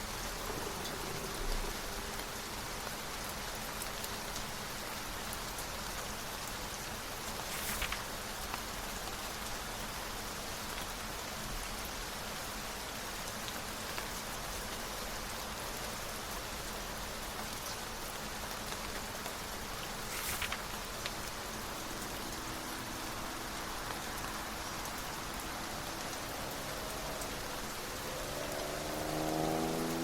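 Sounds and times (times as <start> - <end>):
steady rain: 0.0 - 30.0
book page turning: 7.4 - 8.1, 20.0 - 21.2.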